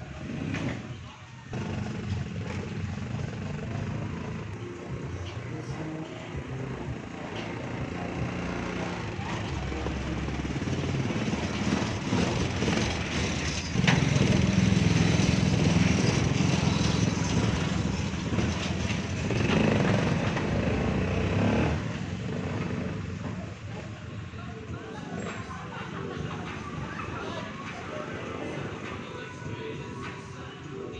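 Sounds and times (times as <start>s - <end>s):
small vehicle engine running: 1.5s - 24.0s.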